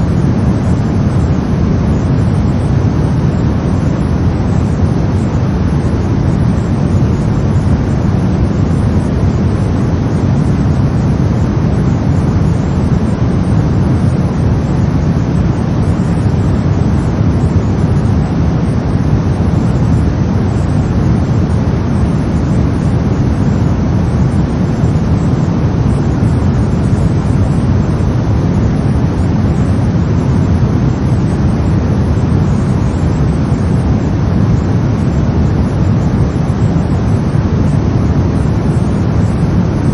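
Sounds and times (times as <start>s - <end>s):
brown noise: 0.0s - 39.9s.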